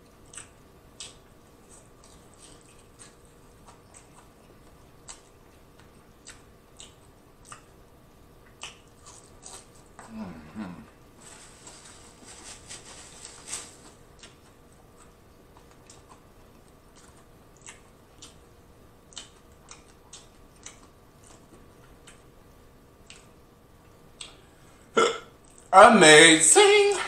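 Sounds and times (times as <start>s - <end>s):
chewing with wet mouth clicks: 0.1s - 7.8s, 8.4s - 10.1s, 14.1s - 22.4s, 23.0s - 24.4s, 25.4s - 25.7s.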